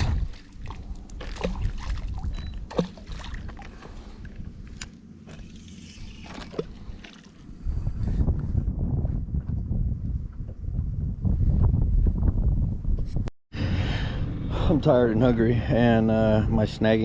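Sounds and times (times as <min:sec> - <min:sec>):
water lapping against kayak hull: 0:00.0 - 0:07.8.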